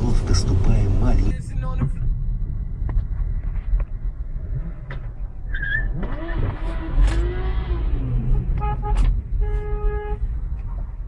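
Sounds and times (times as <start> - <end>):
car road noise rumble: 0.0 - 11.0
car horn: 8.2 - 10.3.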